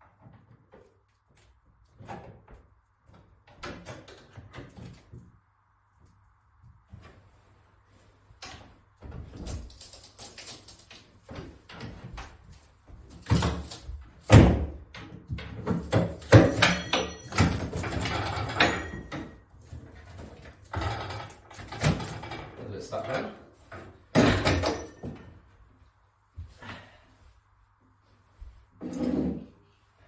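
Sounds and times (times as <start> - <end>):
objects knocking and clattering: 11.2 - 25.5.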